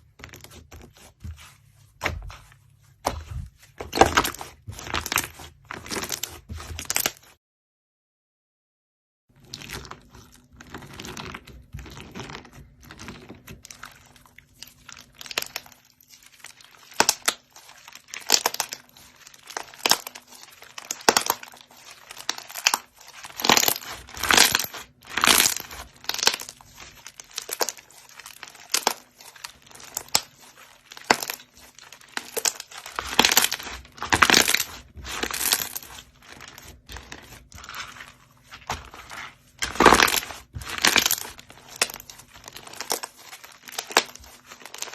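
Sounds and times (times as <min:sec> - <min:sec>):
slime crackling and popping: 0:10.7 - 0:44.9.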